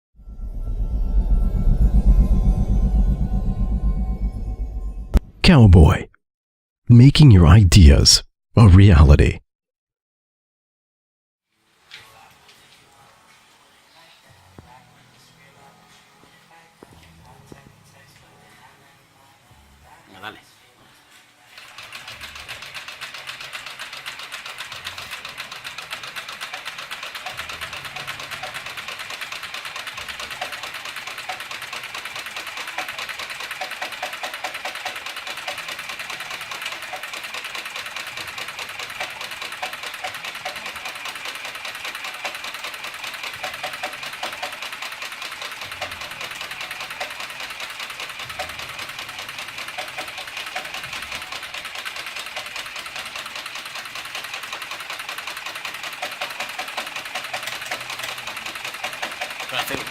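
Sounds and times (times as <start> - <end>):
sewing machine running: 21.6 - 59.9.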